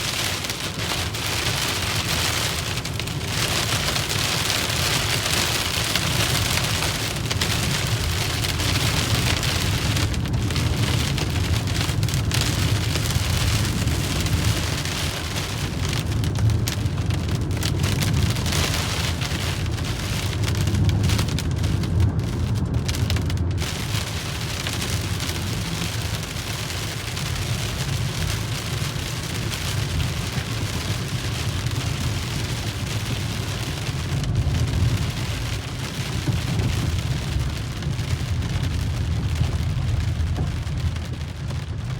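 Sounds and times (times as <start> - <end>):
car running rumble: 0.0 - 41.9
rain drumming on a car: 0.0 - 41.9.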